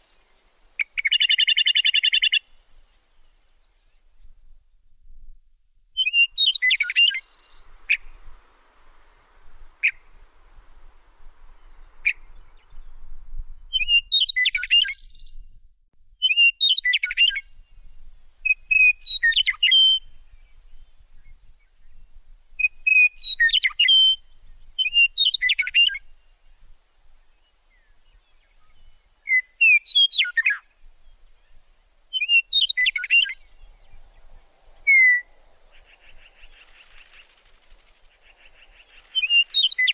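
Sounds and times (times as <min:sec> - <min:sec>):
bird singing: 0:06.0 - 0:08.5, 0:11.4 - 0:15.6, 0:16.2 - 0:26.7, 0:27.3 - 0:39.9.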